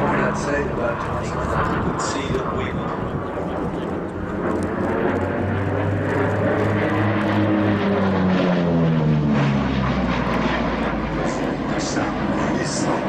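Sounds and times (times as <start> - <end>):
propeller plane flying past: 0.0 - 13.0.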